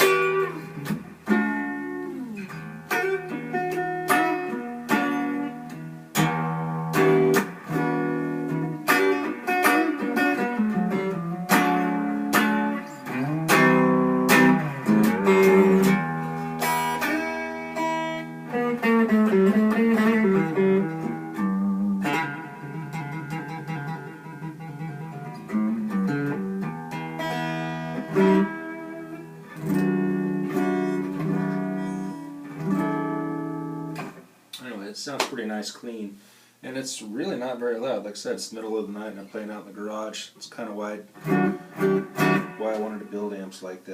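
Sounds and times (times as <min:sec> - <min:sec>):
clean electric guitar with reverb: 0:00.0 - 0:34.2.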